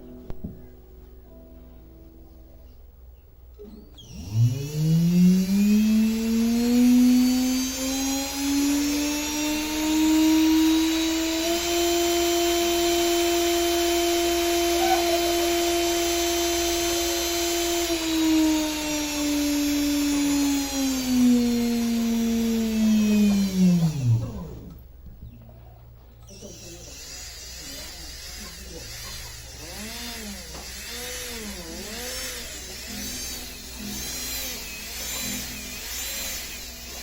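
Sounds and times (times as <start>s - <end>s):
jet engine motor whirring: 4.0s - 24.9s.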